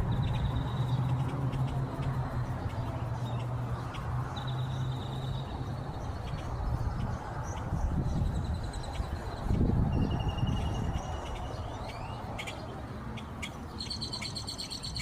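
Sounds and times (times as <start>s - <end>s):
outdoor noise: 0.0s - 15.0s.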